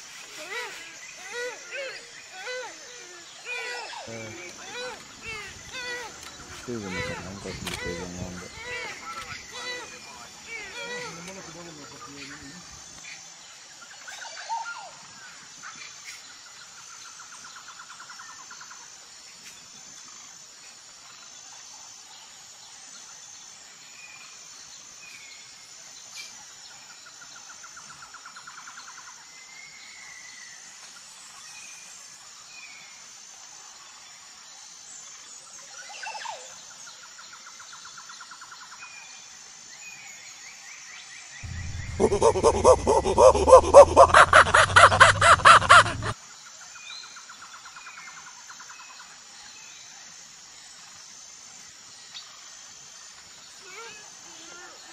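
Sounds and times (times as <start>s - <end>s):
high insect drone: 0.0s - 13.2s, 41.4s - 46.2s
bird chirps: 41.4s - 46.1s.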